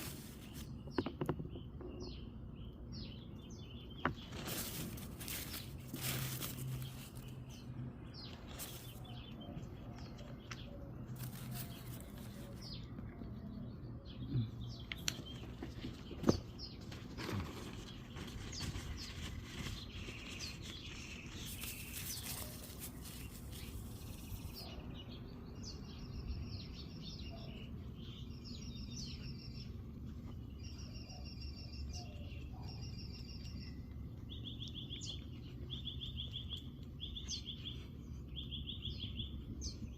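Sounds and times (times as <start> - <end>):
small birds chirping trills: 0.0 - 39.9.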